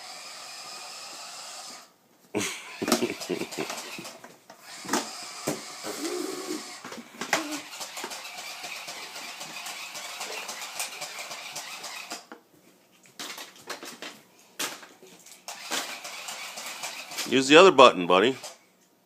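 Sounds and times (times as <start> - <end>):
toy car electric motor whirring: 0.0 - 1.9, 2.7 - 12.3, 15.4 - 17.4, 18.1 - 18.6
toy car wheels clicking and knocking: 2.8 - 12.4, 13.2 - 17.4.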